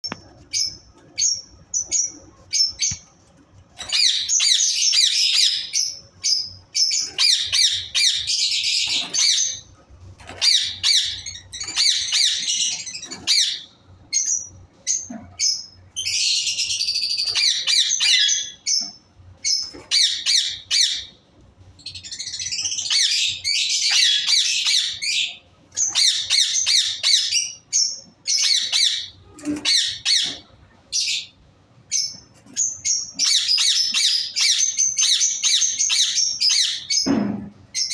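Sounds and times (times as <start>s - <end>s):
parrots chattering and squawking: 3.8s - 9.6s, 10.2s - 18.8s, 19.4s - 21.2s, 22.0s - 31.3s, 31.9s - 37.9s.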